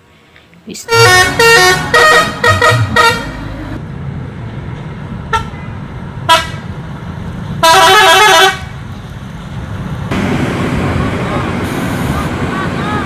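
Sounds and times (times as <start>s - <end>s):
engine rumble: 0.4s - 7.6s, 8.7s - 13.0s
vehicle horn honking: 0.9s - 3.8s
warbling multi-tone horn blast: 0.9s - 3.8s.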